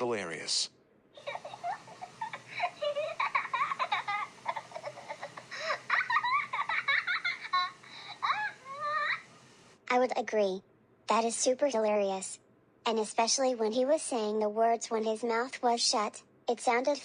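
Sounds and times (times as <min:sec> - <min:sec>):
high-pitched giggling: 0:01.2 - 0:09.3.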